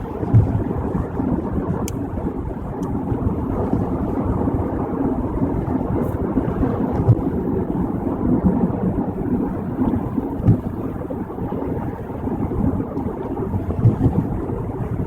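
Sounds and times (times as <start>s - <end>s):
car road noise from inside: 0.0s - 15.0s.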